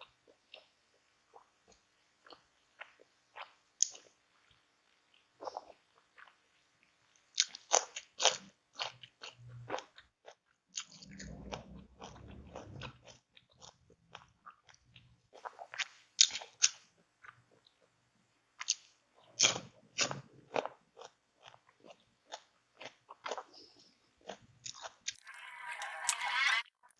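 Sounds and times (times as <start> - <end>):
crunchy bites and chewing: 7.3 - 17.9, 18.6 - 23.5, 24.2 - 25.6
dull low rumble: 10.9 - 13.1.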